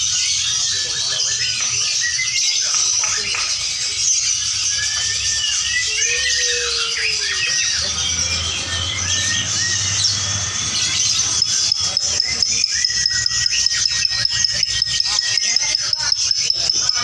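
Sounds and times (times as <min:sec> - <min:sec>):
lovebirds chattering and trilling: 0:00.0 - 0:17.0
fast sharp clicks: 0:11.4 - 0:17.0.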